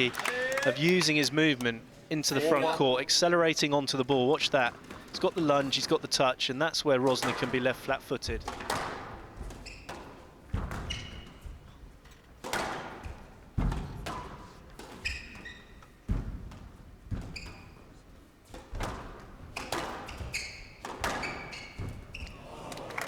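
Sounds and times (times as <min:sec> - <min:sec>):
shoes squeaking on court floor: 0:03.7 - 0:22.9
squash ball hitting rackets and walls: 0:07.1 - 0:22.9.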